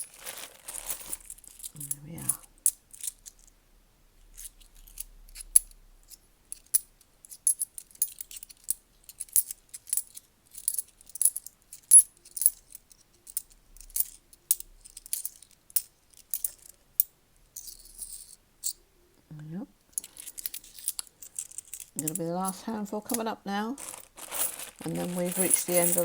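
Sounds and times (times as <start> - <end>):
coins clinking: 0.0 - 2.4, 20.0 - 23.2, 23.8 - 26.0.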